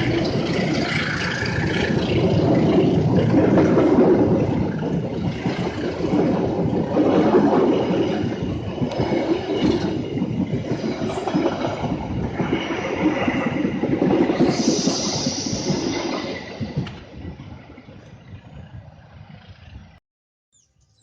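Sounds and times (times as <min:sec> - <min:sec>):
train rumbling on rails: 0:00.0 - 0:20.0
high thin squeal: 0:14.4 - 0:17.1.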